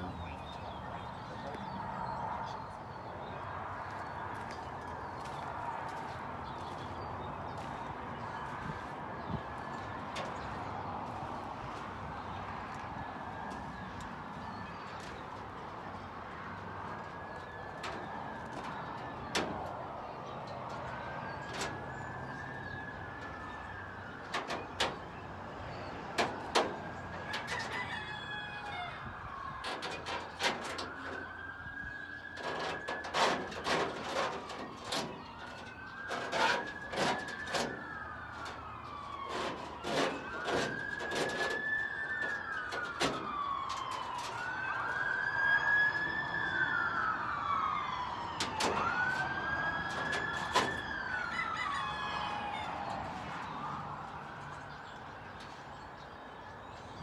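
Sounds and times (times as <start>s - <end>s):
siren wailing: 20.7s - 55.2s.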